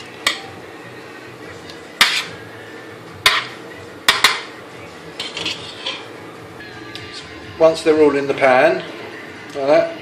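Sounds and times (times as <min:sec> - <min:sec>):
utensil knocking on roasting pan: 0:04.1 - 0:04.5
utensil scraping and clinking: 0:05.2 - 0:06.1.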